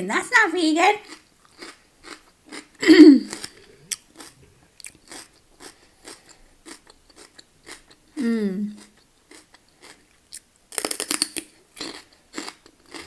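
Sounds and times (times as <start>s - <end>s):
crunchy food chewing: 1.0s - 13.0s
person humming: 2.8s - 3.4s, 8.2s - 8.8s.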